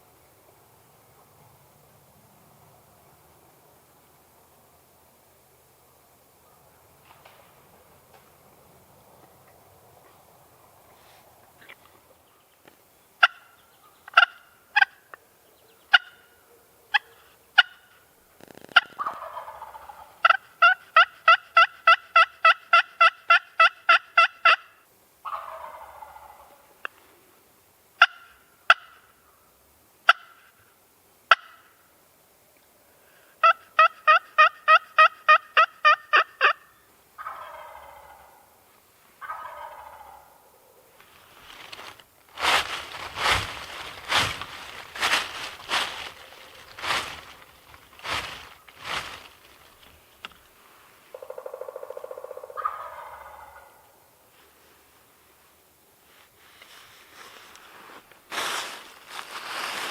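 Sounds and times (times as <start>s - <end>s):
turkey gobbling: 13.2s - 15.2s, 15.8s - 18.0s, 18.7s - 26.8s, 28.0s - 29.1s, 30.1s - 30.5s, 31.3s - 31.8s, 33.4s - 38.6s, 39.2s - 40.9s, 51.1s - 54.0s
turkey clucks and yelps: 13.2s - 17.9s, 18.6s - 26.9s, 28.0s - 29.1s, 30.1s - 30.5s, 31.3s - 31.8s, 33.4s - 38.6s, 39.2s - 40.9s, 51.1s - 54.0s.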